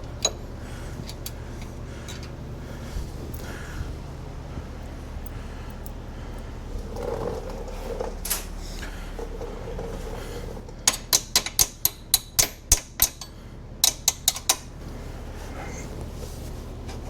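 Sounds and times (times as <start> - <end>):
socket ratchet clicking: 10.9 - 14.7.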